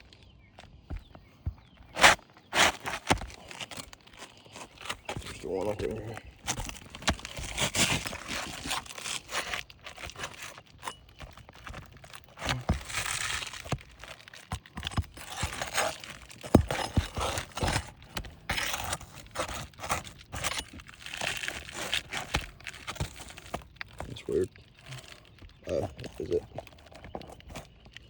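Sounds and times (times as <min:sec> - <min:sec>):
shingles scraping and tearing: 0:00.7 - 0:28.0.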